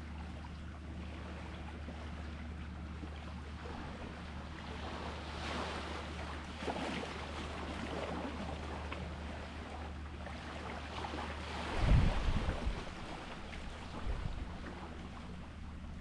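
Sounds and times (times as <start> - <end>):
sea water lapping: 0.0 - 16.0
steady low hum: 0.0 - 16.0
wave surging and splashing: 3.5 - 15.6.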